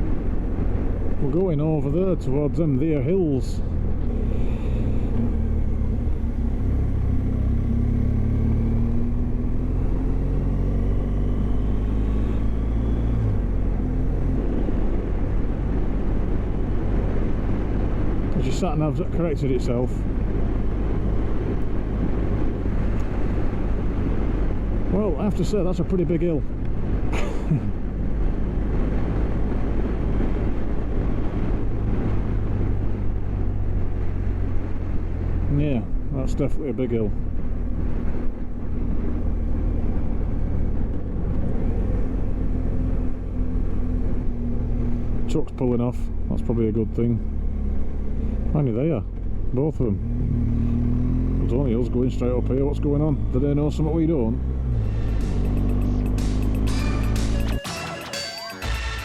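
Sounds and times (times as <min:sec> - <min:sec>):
motorcycle cruising: 0:00.0 - 0:59.0
road and wind noise: 0:00.0 - 0:59.0
wind rushing over microphone: 0:20.0 - 0:25.0, 0:26.3 - 0:36.1.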